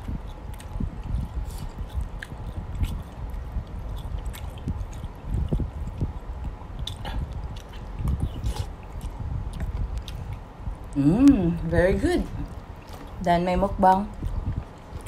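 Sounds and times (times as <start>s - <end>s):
person chewing food: 0.0s - 11.4s, 12.4s - 13.2s, 14.1s - 15.0s.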